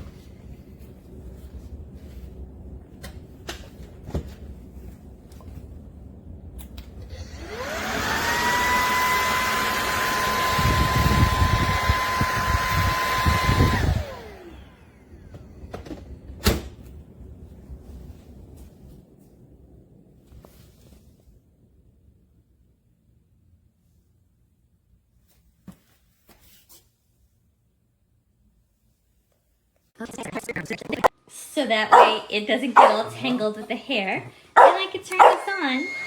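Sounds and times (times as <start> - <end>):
vacuum cleaner motor whining: 7.0 - 15.9, 32.7 - 36.0.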